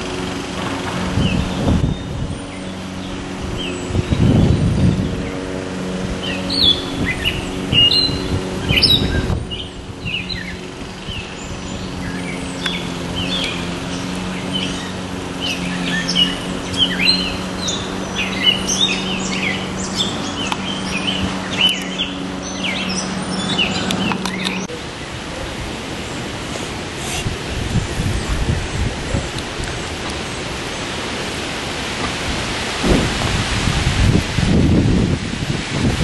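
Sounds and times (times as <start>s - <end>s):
steady low hum: 0.0s - 36.0s
wind rumble on microphone: 0.0s - 36.0s
songbirds chirping and singing: 0.1s - 24.8s.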